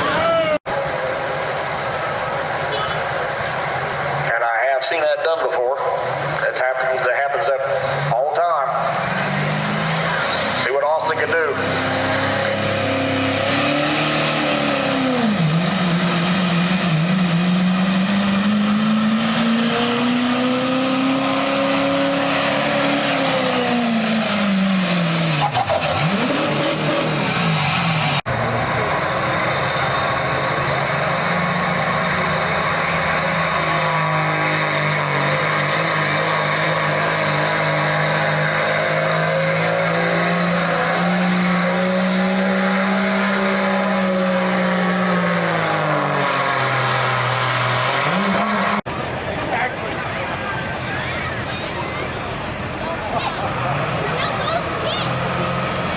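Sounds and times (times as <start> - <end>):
truck engine under heavy load: 0.0 - 55.9
high whistle: 54.5 - 55.9.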